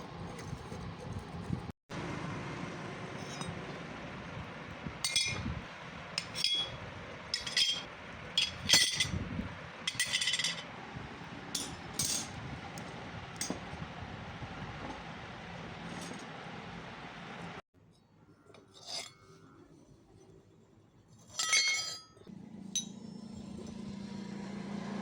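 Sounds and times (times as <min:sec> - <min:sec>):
metal clinking on metal: 0:05.0 - 0:05.4, 0:06.2 - 0:09.2, 0:09.8 - 0:10.7, 0:11.5 - 0:12.4, 0:21.3 - 0:23.1.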